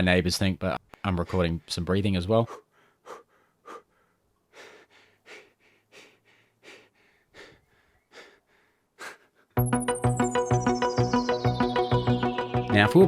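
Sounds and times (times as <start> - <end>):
man breathing heavily: 2.4 - 9.6
rhythmic electronic music: 9.6 - 13.0.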